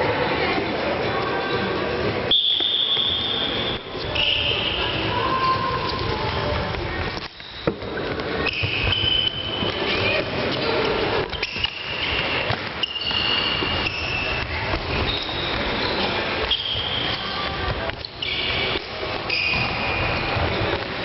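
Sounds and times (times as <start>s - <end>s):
shoes squeaking on court floor: 2.2s - 21.0s
sticks and ball clacking: 5.6s - 19.0s.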